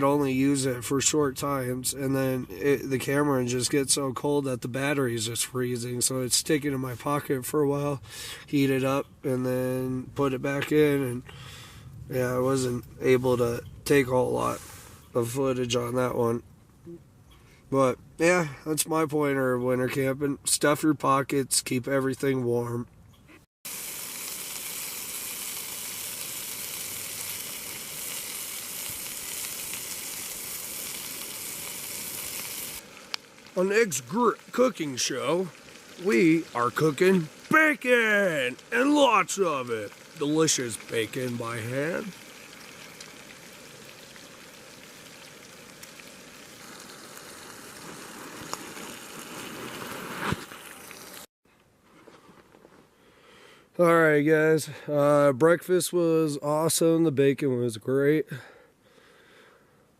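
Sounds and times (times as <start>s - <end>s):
bacon sizzling in a frying pan: 23.7s - 51.3s.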